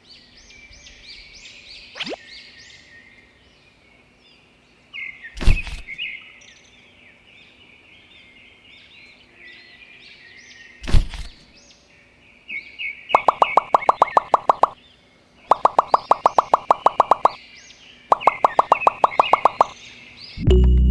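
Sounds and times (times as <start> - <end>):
birds chirping: 13.2 - 14.8, 15.5 - 17.4, 18.1 - 20.0.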